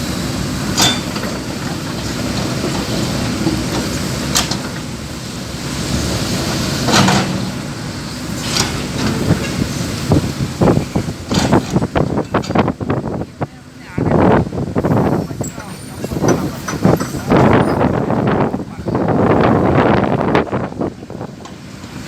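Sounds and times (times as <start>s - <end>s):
truck engine rumble: 0.0s - 22.0s
clattering knocks: 6.8s - 7.8s, 8.4s - 12.6s.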